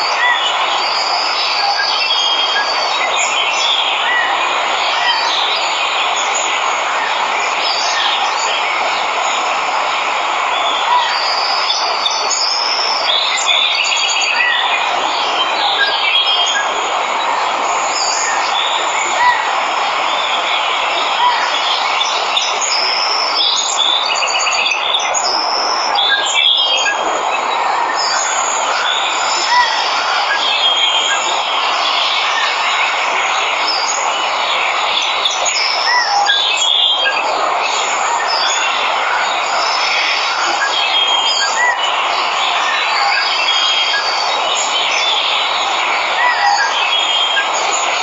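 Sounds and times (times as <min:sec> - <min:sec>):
waterfall rushing: 0:00.0 - 0:48.0
birds chirping and trilling: 0:10.4 - 0:48.0.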